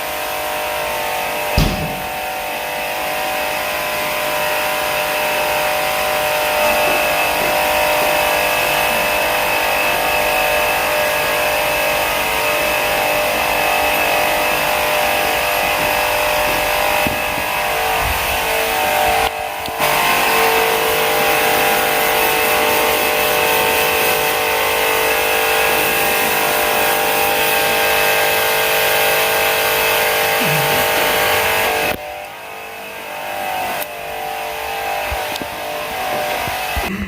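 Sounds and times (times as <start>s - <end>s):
sharp thump: 1.6s - 2.2s.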